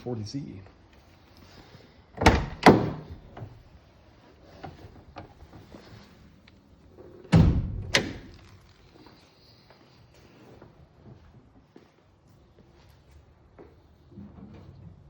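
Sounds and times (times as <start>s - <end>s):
car door thunks: 2.2s - 3.4s, 7.3s - 8.4s.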